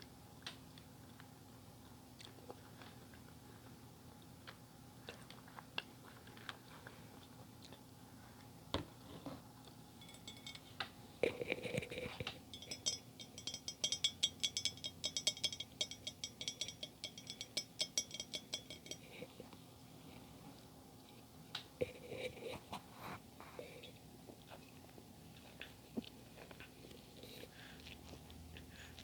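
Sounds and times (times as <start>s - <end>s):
utensil clinking on tableware: 10.0s - 19.3s.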